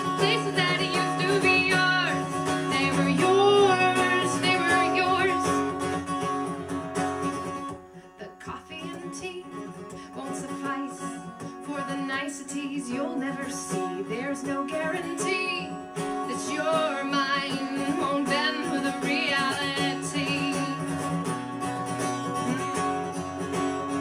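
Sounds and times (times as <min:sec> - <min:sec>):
woman singing: 0:00.0 - 0:05.8, 0:08.1 - 0:21.2
acoustic guitar playing: 0:00.0 - 0:24.0.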